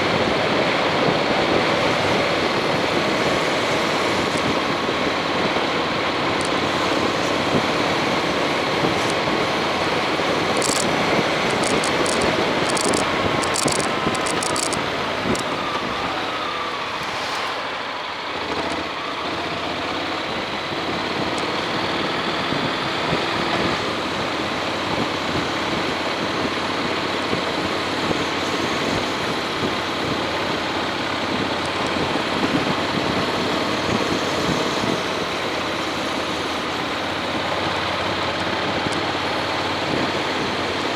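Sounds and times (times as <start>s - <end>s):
motorcycle engine running: 0.0s - 15.9s, 18.2s - 40.9s
wind noise on microphone: 0.0s - 17.1s, 20.2s - 40.9s
sharp ticks: 6.4s - 6.7s, 10.3s - 15.5s.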